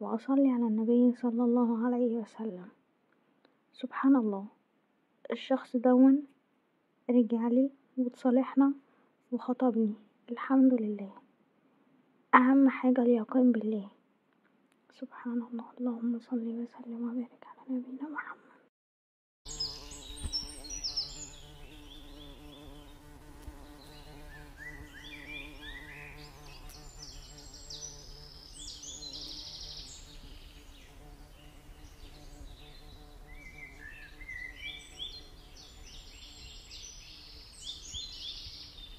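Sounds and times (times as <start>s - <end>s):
birds chirping and trilling: 19.5s - 38.9s.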